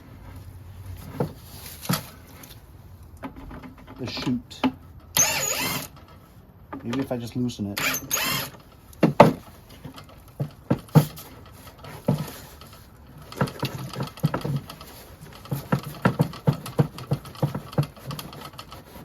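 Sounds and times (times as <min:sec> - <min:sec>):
hand tools clicking and tapping: 0:08.9 - 0:19.0.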